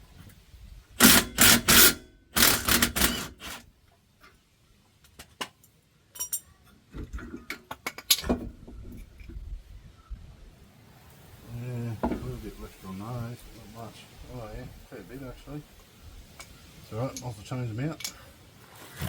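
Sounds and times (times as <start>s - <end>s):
loud rattling tool bursts: 1.0s - 3.6s
metal clicks and clanks: 5.0s - 9.4s.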